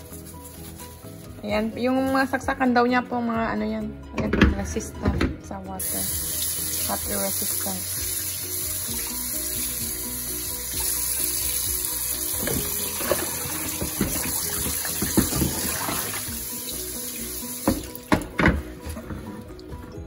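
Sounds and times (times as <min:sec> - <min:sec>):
tap water running into pan: 0:05.8 - 0:19.8
pan knocking against sink: 0:12.4 - 0:16.1, 0:17.6 - 0:19.3.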